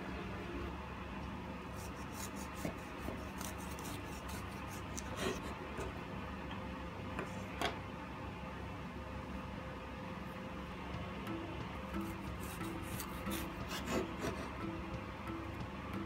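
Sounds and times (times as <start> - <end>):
bread knife sawing through loaf: 1.8 - 5.6, 12.4 - 14.5.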